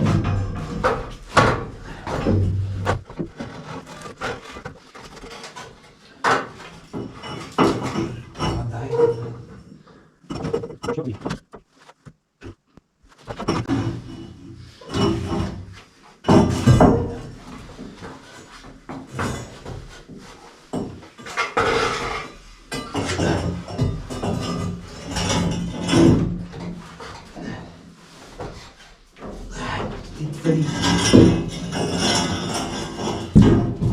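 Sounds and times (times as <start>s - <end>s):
heavy shelf knocking and scraping: 0.0s - 11.5s, 13.2s - 33.9s.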